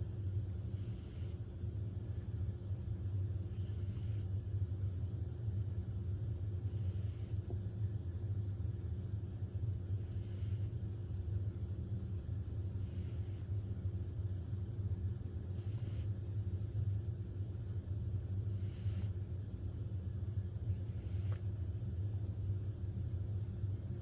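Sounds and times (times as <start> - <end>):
steady low hum: 0.0 - 24.0
puppy snoring: 0.6 - 1.4, 3.5 - 4.3, 6.6 - 7.5, 9.8 - 10.8, 12.7 - 13.6, 15.4 - 16.3, 18.4 - 19.2, 20.7 - 21.5.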